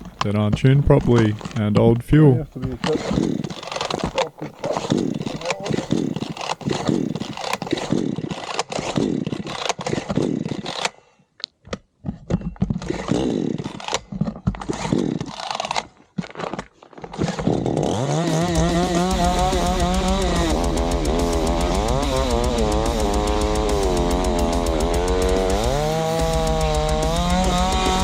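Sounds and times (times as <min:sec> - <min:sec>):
dirt bike engine revving: 0:00.0 - 0:08.0, 0:17.4 - 0:28.0
heavy metal guitar riff: 0:18.5 - 0:28.0.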